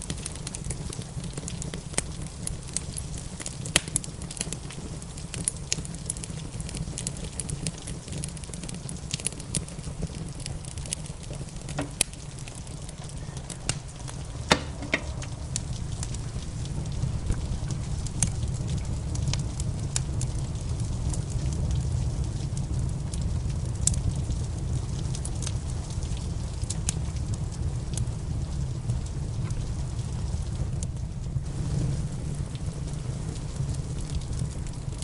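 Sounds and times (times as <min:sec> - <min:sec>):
wood fire crackling: 0:00.0 - 0:35.0
low rumble: 0:11.1 - 0:26.0.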